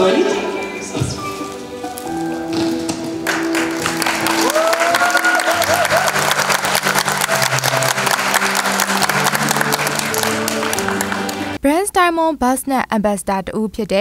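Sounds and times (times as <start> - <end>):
background music: 0.0 - 12.4
audience applauding: 2.8 - 11.6.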